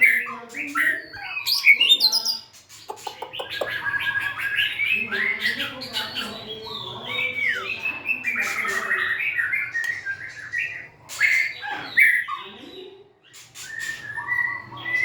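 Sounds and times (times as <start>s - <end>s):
bird singing whistled notes: 7.3s - 12.3s, 13.6s - 15.0s.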